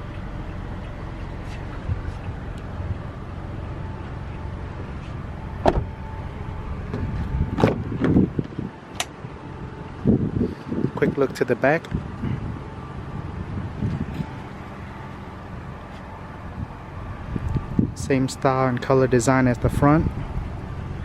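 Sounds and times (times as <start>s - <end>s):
steady low hum: 0.0s - 21.0s
sharp clicks of car fittings: 8.9s - 9.2s.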